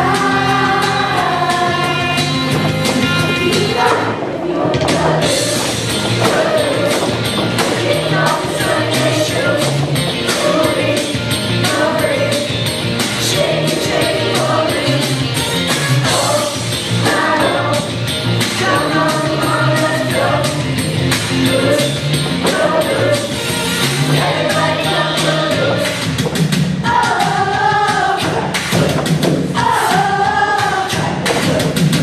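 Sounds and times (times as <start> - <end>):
driving percussion beat: 0.0 - 32.0
upbeat music with singing: 0.0 - 32.0.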